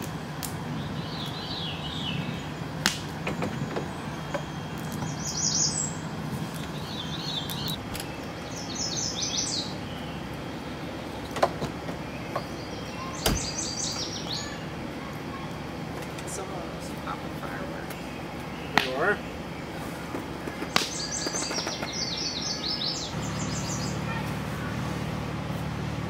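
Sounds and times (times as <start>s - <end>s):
songbirds chirping: 0.0s - 26.0s
low hum: 22.4s - 26.0s.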